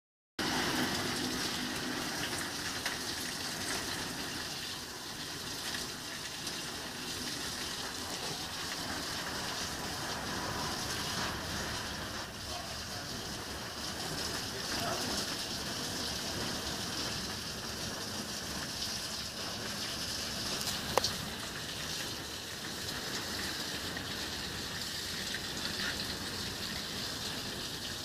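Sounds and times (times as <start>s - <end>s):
heavy rain falling: 0.4s - 28.0s.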